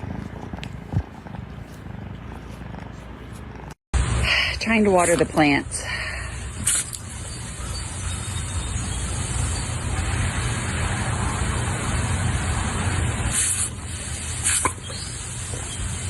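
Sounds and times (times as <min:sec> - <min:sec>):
water spraying from garden hose: 0:04.3 - 0:16.0.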